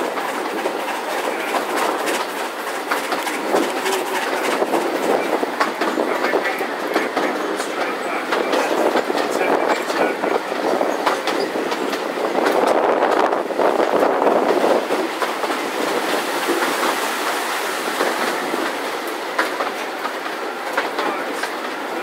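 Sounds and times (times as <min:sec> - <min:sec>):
train running noise: 0:00.0 - 0:22.0
train wheels clicking on rail joints: 0:00.0 - 0:22.0.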